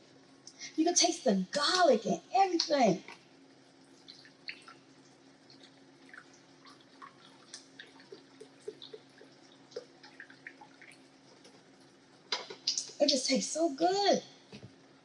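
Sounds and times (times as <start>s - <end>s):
sauce simmering in a pan: 2.6s - 13.0s.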